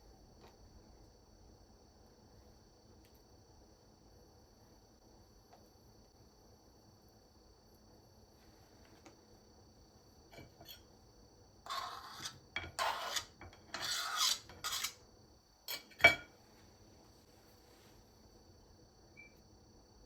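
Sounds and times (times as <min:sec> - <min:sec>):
kitchen utensils scraping: 0:10.4 - 0:10.8, 0:11.7 - 0:15.0, 0:15.7 - 0:16.3
utensil clinking on a dish: 0:15.7 - 0:16.3.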